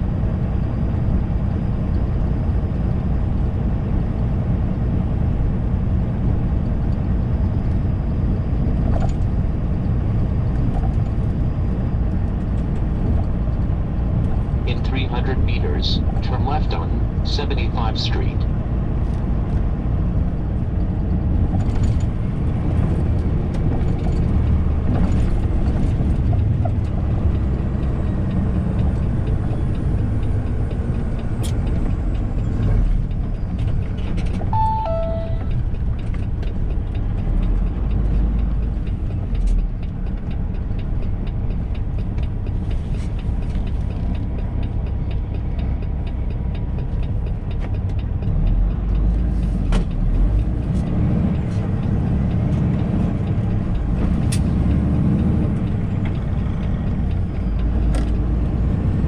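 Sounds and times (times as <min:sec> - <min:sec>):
truck engine and road rumble: 0:00.0 - 0:59.0
two-note electronic chime: 0:34.5 - 0:35.6.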